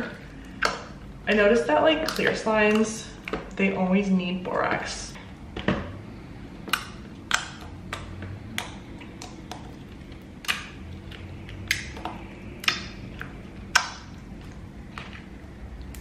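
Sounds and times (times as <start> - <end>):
slime clicking and popping: 0.5 - 3.6, 6.6 - 16.0.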